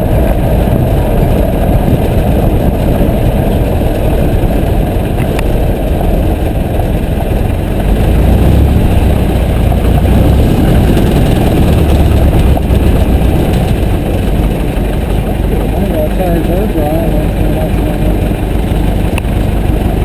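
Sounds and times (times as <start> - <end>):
aircraft piston engine drone: 0.0 - 20.0.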